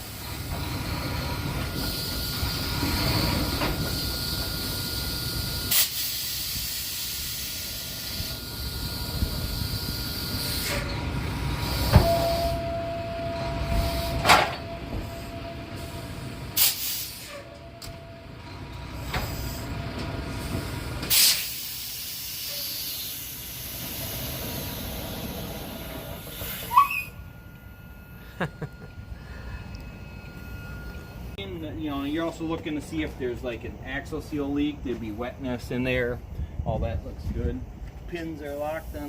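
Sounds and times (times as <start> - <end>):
truck air system hissing: 0.0 - 12.7, 13.6 - 17.6, 18.9 - 27.3, 38.4 - 39.0
metal clunks: 14.2 - 15.2.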